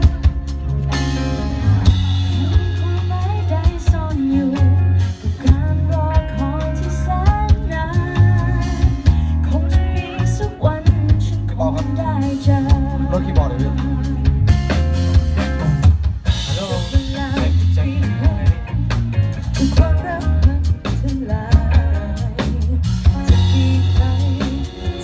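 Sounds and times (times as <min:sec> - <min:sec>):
person singing: 0:00.0 - 0:14.8, 0:16.4 - 0:25.0
bass line: 0:00.0 - 0:25.0
drums: 0:00.0 - 0:25.0.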